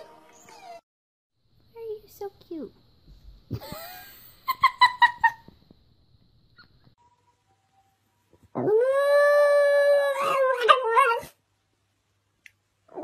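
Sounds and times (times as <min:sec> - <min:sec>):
dog howling: 0:08.6 - 0:11.4.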